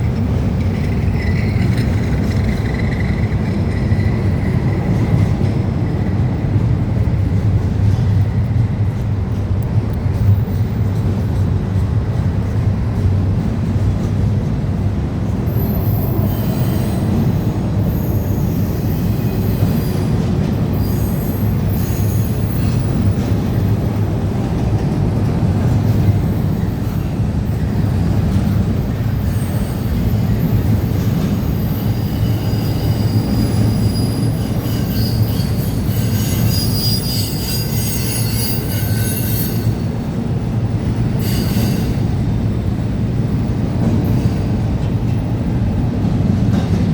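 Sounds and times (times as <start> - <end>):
train cars rumbling on rails: 0.0 - 46.9
high-pitched wheel squeal: 29.2 - 39.9, 41.2 - 42.0.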